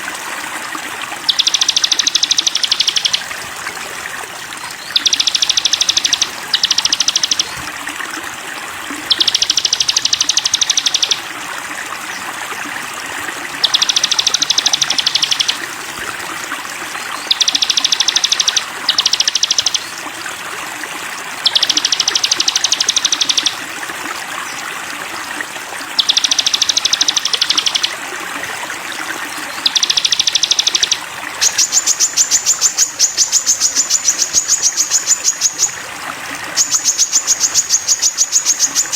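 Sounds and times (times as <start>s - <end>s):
flowing water: 0.0s - 38.9s
bird trilling: 1.3s - 3.4s, 4.6s - 7.7s, 9.0s - 11.3s, 13.6s - 15.7s, 17.0s - 20.0s, 21.4s - 23.6s, 26.0s - 28.0s, 29.4s - 38.9s.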